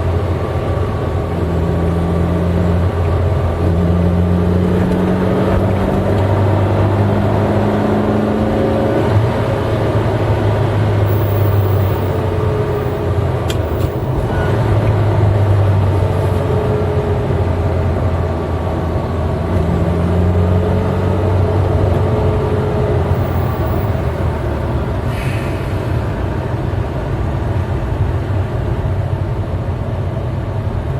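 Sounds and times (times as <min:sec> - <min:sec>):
car engine running while driving: 0:00.0 - 0:30.9.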